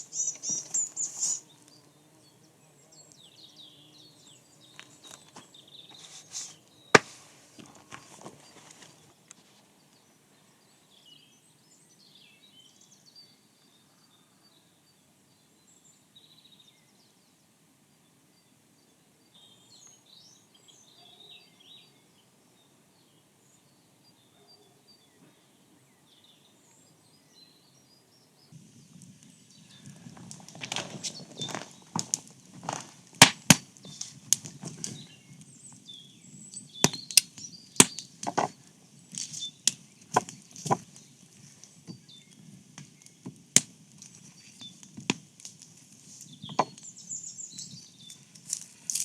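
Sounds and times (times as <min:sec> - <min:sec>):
rustling and handling noises: 0:00.0 - 0:01.7, 0:04.8 - 0:09.7, 0:29.0 - 0:35.2, 0:37.8 - 0:43.2, 0:47.6 - 0:49.0
birdsong with high chirps: 0:00.0 - 0:32.6, 0:33.8 - 0:43.4, 0:44.1 - 0:45.0, 0:46.0 - 0:49.0.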